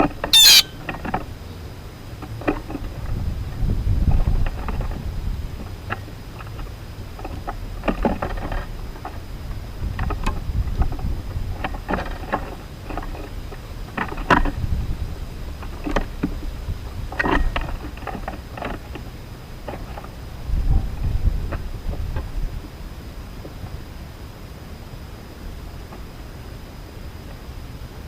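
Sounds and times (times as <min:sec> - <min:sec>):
short sharp sounds: 0:00.4 - 0:00.7.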